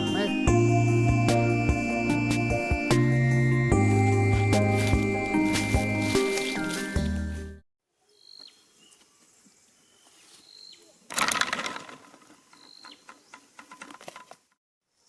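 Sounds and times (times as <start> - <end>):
rustling and scuffling: 4.2 - 7.6
small bird chirping: 8.0 - 11.1, 12.5 - 13.6.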